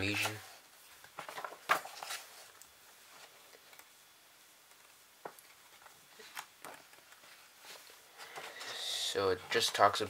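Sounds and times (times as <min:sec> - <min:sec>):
book handling clicks and rustles: 0:01.0 - 0:03.9, 0:04.6 - 0:08.8.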